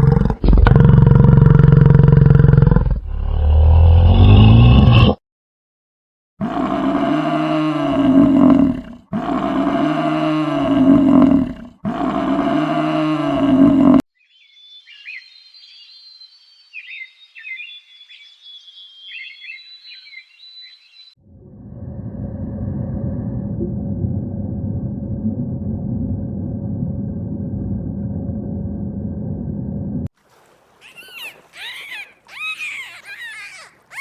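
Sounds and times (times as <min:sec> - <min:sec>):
faint high chirping: 0:30.8 - 0:34.0.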